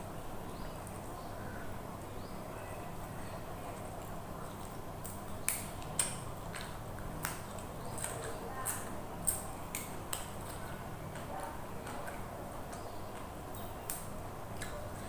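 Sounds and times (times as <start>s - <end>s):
chewing: 3.0s - 15.0s.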